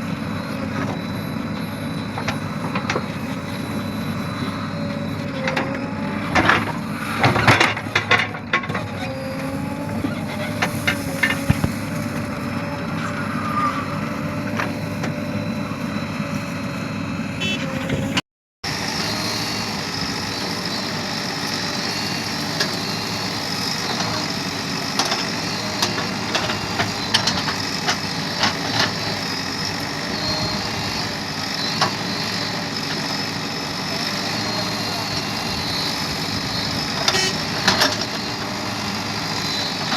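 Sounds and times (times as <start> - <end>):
diesel engines running: 0.0 - 39.9
wavering whine: 0.4 - 18.2.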